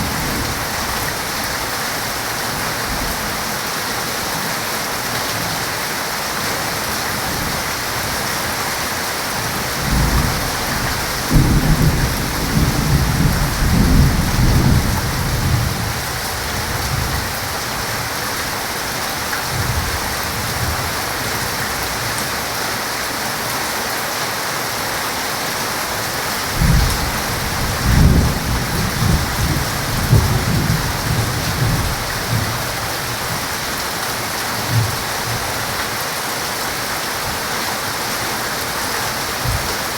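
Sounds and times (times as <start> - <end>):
heavy rain: 0.0 - 39.9
thunder rolling: 9.8 - 16.0, 26.5 - 33.4.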